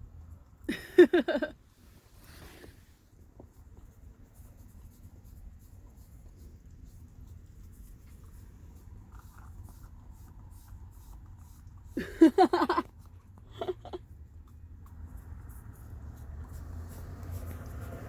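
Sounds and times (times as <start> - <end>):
dog licking a cup: 3.4 - 12.2.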